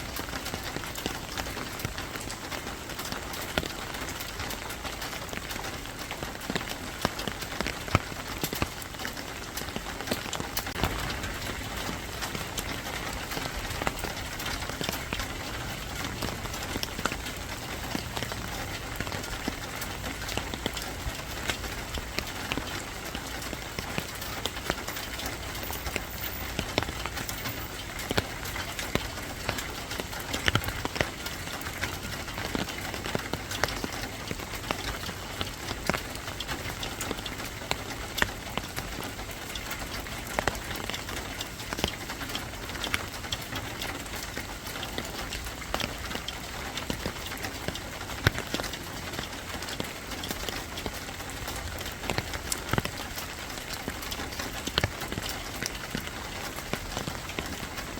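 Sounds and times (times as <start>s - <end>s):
rain on a hard surface: 0.0s - 57.9s.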